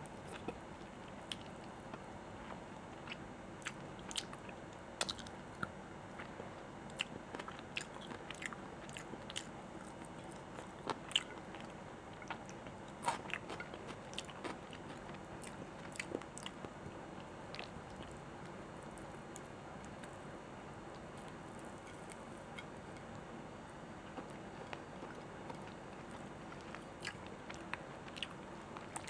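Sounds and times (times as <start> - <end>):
person chewing food: 6.9 - 20.2, 24.0 - 29.0.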